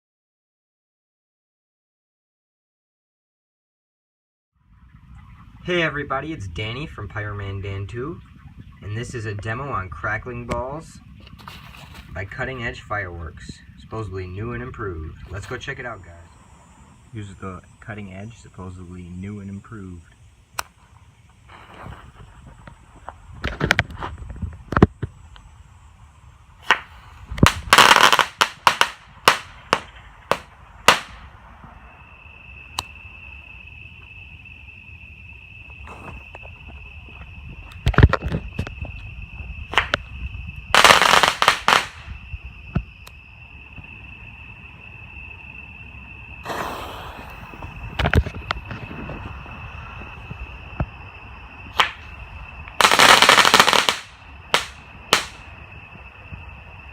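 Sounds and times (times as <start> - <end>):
firework bangs: 26.6 - 31.7, 40.7 - 42.2, 46.4 - 49.3, 51.7 - 52.1, 52.8 - 55.6
firework crackling: 26.6 - 31.7, 40.7 - 42.2, 46.4 - 48.3, 52.8 - 55.5.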